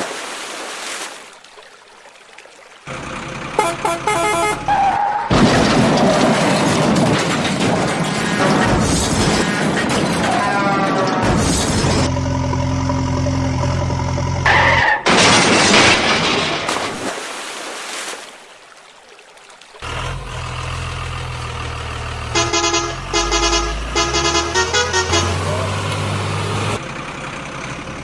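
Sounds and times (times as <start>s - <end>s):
truck engine running: 2.9s - 10.3s, 11.2s - 14.5s, 19.8s - 28.0s
truck horn honks: 3.5s - 5.0s, 22.2s - 26.0s.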